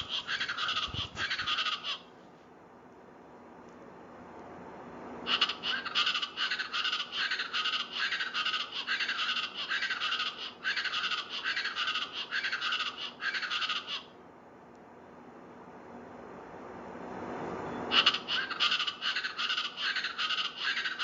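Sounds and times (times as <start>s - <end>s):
bird calling rapid repeated notes: 0.0s - 2.1s, 5.3s - 14.1s, 17.9s - 21.0s.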